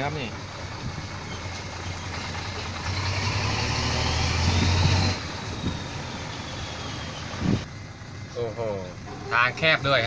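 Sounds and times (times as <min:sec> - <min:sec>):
dump truck engine running: 0:00.0 - 0:10.0
tyre and road noise: 0:00.0 - 0:10.0.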